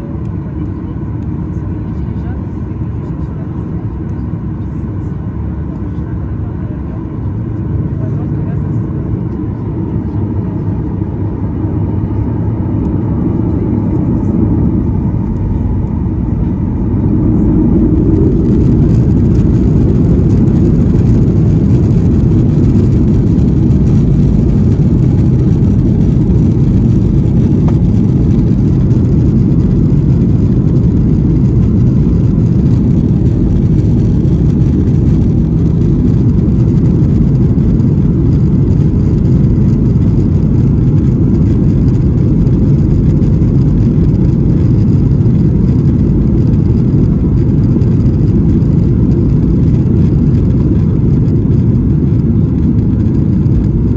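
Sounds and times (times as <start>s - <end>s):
jet engines rumbling: 0.0s - 53.9s.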